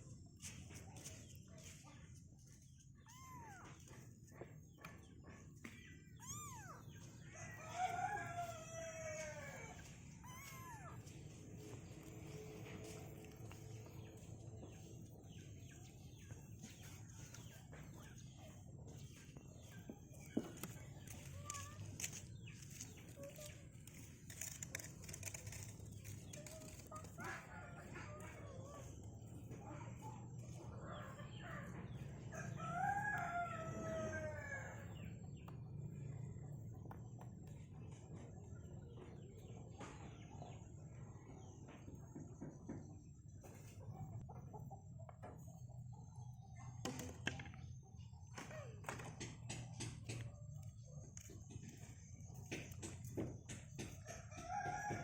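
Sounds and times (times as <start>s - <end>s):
rooster crowing: 7.5s - 10.7s, 32.3s - 34.9s
chickens clucking: 25.3s - 35.5s, 41.3s - 46.7s.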